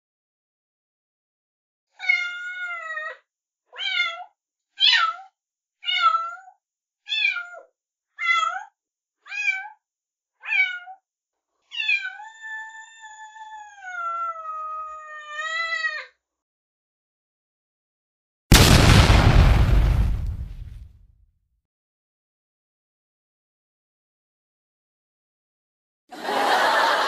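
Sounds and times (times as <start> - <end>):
kittens meowing: 2.0 - 3.2, 3.8 - 5.2, 5.8 - 6.5, 7.1 - 7.6, 9.3 - 9.7, 10.4 - 11.0, 11.7 - 16.1.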